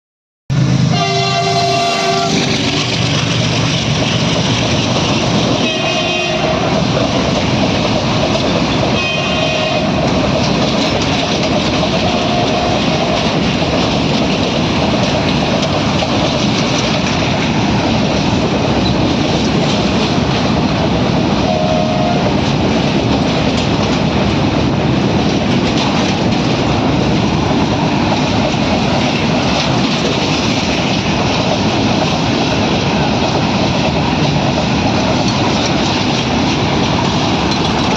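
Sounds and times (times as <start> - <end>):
train wheels clickety-clack: 0.6 - 37.9
train horn blasts: 0.9 - 2.5, 5.6 - 6.8, 8.9 - 10.0, 12.0 - 12.8, 21.4 - 22.3.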